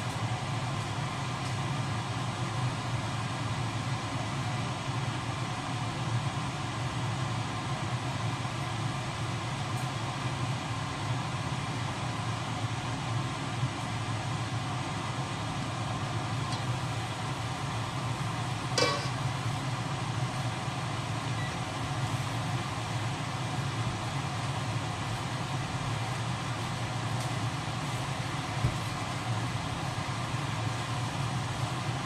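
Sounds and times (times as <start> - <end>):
squid frying in a wok: 0.0 - 32.0
steady hum and hiss: 0.0 - 32.0
metal wok lid clang: 18.8 - 19.2.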